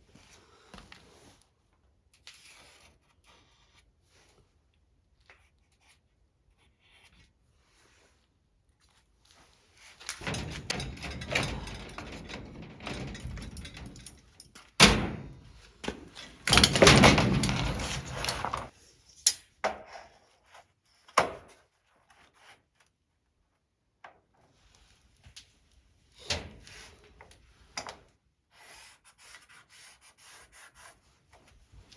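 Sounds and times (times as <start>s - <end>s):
plastic panel rustling and scraping: 10.0s - 18.7s.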